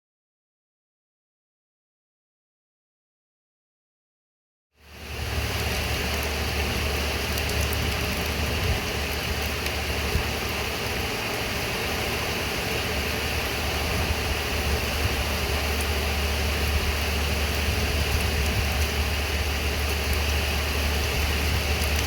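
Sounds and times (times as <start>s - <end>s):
low rumble: 4.8s - 22.0s
steady rain: 4.8s - 22.0s.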